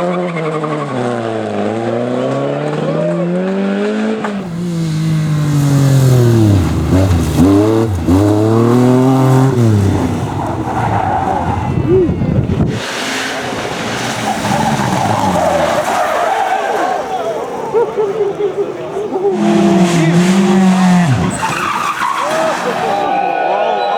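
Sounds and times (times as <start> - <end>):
rally car engines revving: 0.0 - 23.8.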